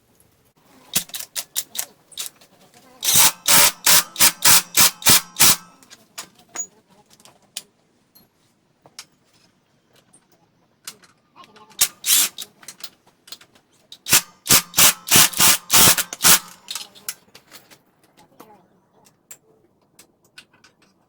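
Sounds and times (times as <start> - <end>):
rasping scraping on metal: 3.0 - 5.7.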